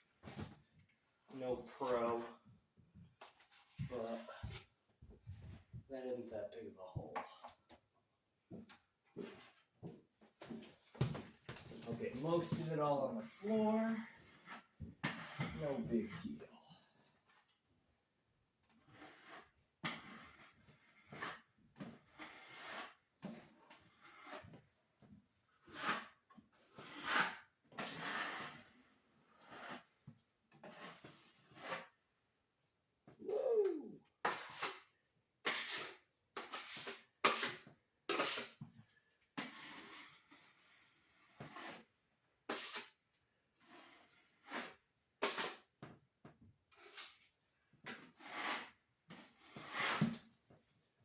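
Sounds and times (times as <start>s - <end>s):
drywall knife scraping: 11.7s - 16.4s, 18.8s - 24.6s, 25.5s - 32.0s, 34.2s - 45.7s, 46.7s - 50.3s.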